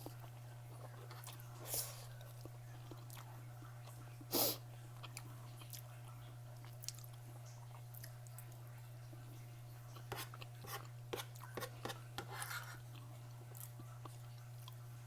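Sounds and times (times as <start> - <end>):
close-up chewing: 0.0 - 8.6, 12.4 - 14.9.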